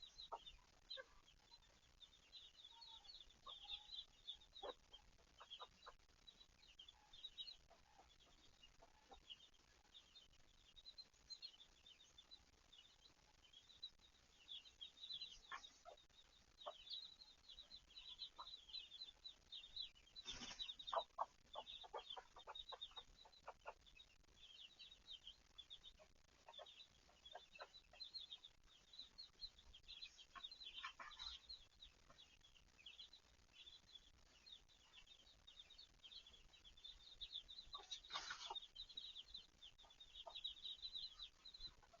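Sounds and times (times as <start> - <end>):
hen clucking: 0.0 - 1.3, 2.6 - 6.1, 15.2 - 19.2, 20.2 - 24.0, 25.8 - 28.5, 29.8 - 32.4, 37.2 - 42.0
chicks peeping: 0.0 - 42.0.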